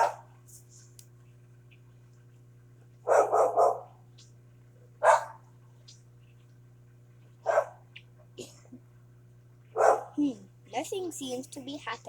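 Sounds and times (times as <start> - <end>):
dog barking: 0.0 - 0.3, 3.0 - 4.0, 5.0 - 5.4, 7.4 - 7.8, 9.7 - 10.2
microwave oven humming: 0.0 - 12.0.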